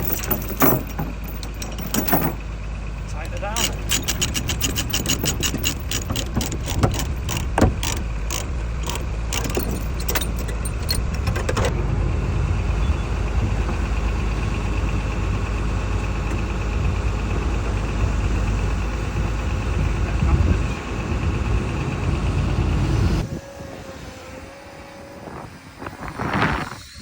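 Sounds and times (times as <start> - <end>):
diesel engine idling: 0.0 - 25.8
ratchet clicking: 3.2 - 11.7.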